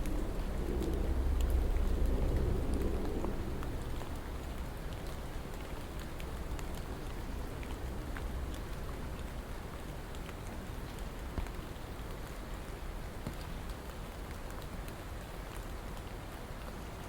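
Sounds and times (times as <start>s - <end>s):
low rumble: 0.0s - 4.7s
rain falling: 0.0s - 17.0s.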